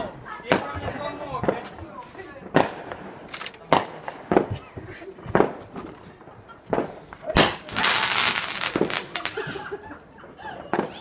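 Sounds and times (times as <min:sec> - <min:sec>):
fireworks cracking: 0:00.5 - 0:09.9
fireworks hissing: 0:06.2 - 0:09.6.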